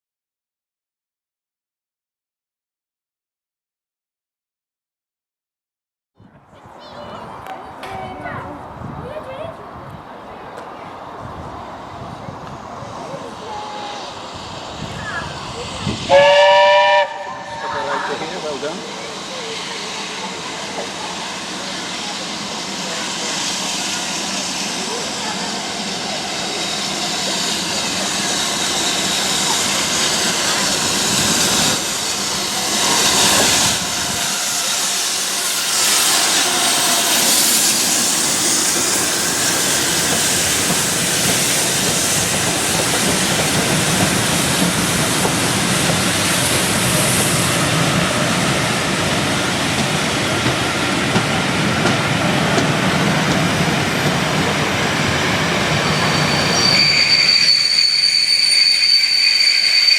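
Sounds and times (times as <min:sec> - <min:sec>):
train coaches rolling: 0:06.5 - 0:59.9
steam hissing: 0:11.5 - 0:59.9.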